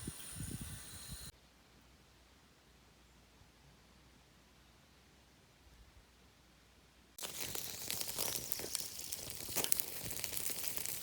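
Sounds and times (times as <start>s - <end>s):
food sizzling over campfire: 7.2s - 11.0s.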